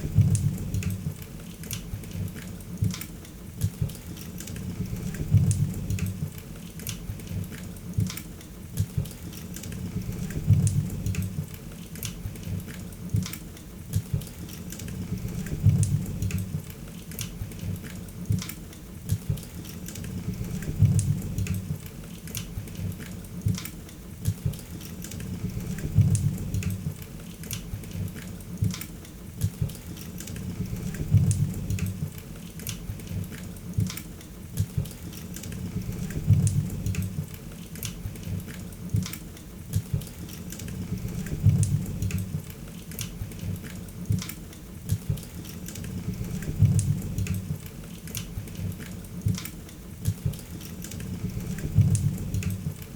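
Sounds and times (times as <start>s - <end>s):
low rumble of flames: 0.0s - 1.2s, 4.6s - 6.4s, 9.8s - 11.6s, 14.9s - 16.7s, 20.0s - 21.9s, 25.2s - 27.0s, 30.4s - 32.2s, 35.5s - 37.4s, 40.7s - 42.5s, 45.9s - 47.6s, 51.1s - 52.8s.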